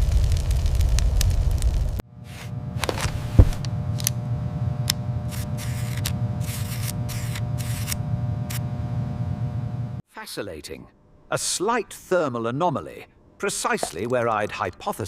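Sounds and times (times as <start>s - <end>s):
steady low hum: 1.6s - 10.0s
sharp thump: 3.3s - 3.6s.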